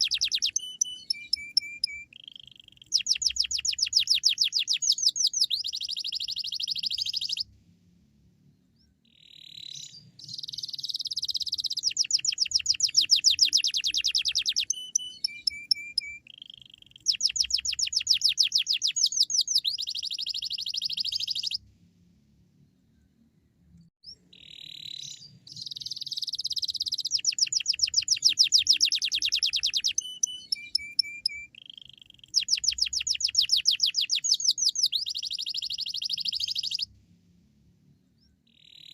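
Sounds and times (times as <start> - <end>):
canary singing trills: 0.0 - 7.5, 9.1 - 21.6, 24.0 - 36.9.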